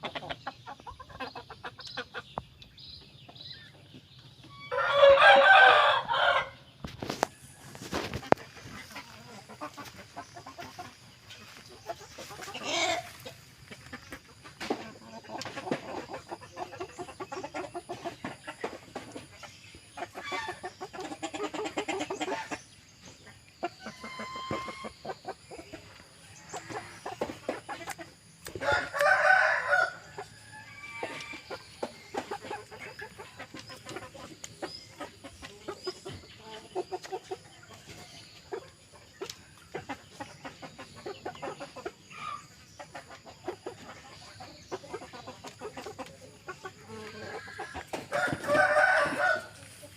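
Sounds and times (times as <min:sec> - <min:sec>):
chickens clucking: 0:00.0 - 0:49.9
rooster crowing: 0:04.7 - 0:06.6, 0:28.6 - 0:31.4, 0:48.1 - 0:49.6.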